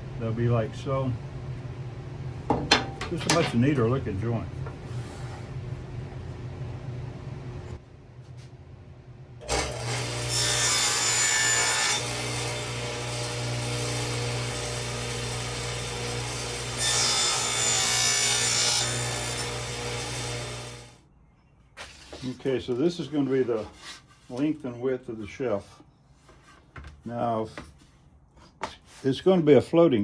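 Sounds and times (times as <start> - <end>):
power saw cutting wood: 9.4 - 21.0.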